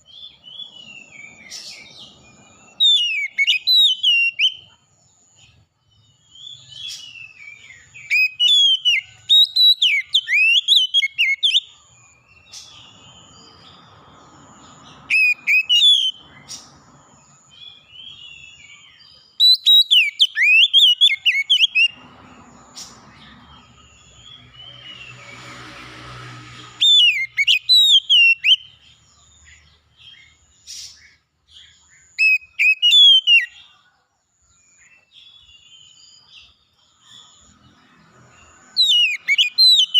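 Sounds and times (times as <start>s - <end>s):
songbird singing whistled phrases: 0.0s - 4.8s, 6.3s - 11.8s, 14.9s - 16.7s, 17.5s - 22.0s, 26.8s - 28.9s, 30.0s - 33.7s, 38.6s - 39.9s
soft rushing noise: 21.9s - 27.3s.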